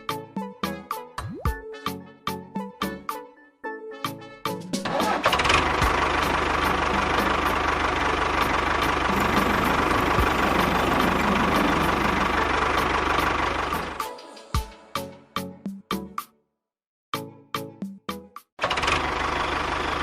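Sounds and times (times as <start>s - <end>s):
small electric motor whine: 9.1s - 12.5s.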